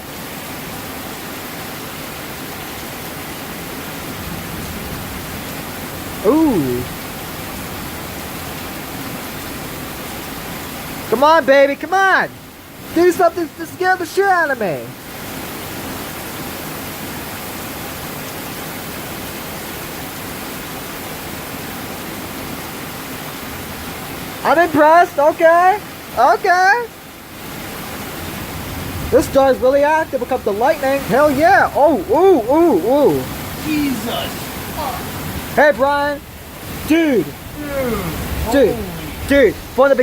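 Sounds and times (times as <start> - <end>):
rain falling: 0.0 - 40.0.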